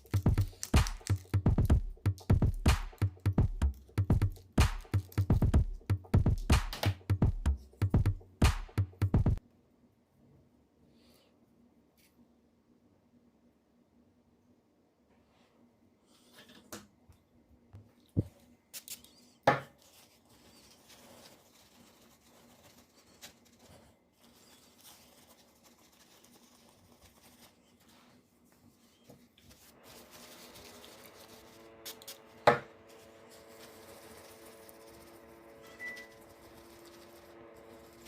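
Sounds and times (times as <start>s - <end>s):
multi-tone steady hum: 29.5s - 38.0s.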